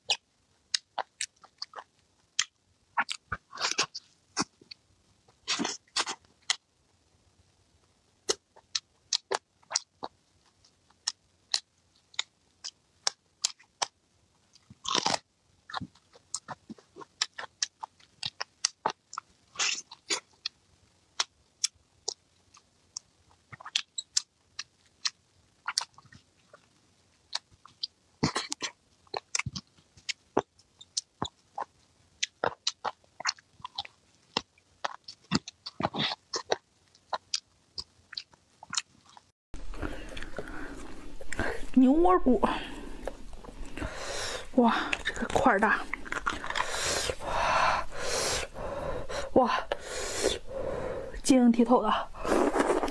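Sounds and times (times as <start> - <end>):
chewing meat mouth clicks: 14.6 - 20.6, 21.2 - 26.2, 27.3 - 39.3, 44.9 - 46.7.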